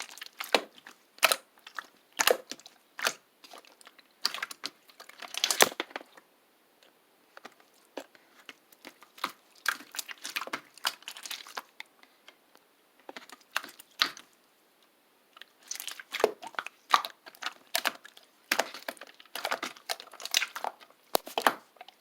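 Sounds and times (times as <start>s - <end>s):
wrapper crinkling: 15.6s - 21.6s.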